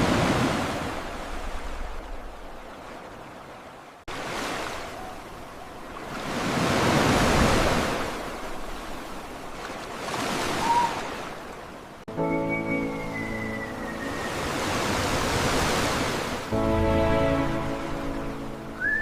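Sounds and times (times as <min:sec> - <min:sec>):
ocean waves washing in: 0:00.0 - 0:19.0
music: 0:12.1 - 0:14.4, 0:16.5 - 0:19.0.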